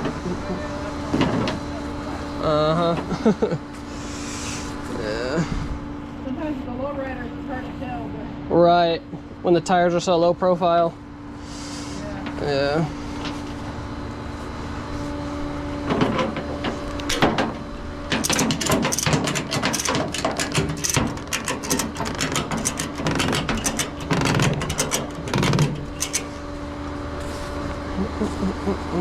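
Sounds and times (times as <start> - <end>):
heavy knocks: 17.1 - 26.3
metallic clicks and clanks: 18.1 - 26.4.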